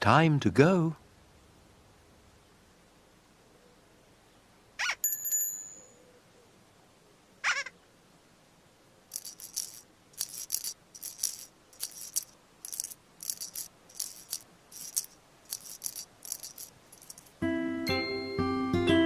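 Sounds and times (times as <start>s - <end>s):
shaker rattling rhythmically: 9.1s - 17.4s.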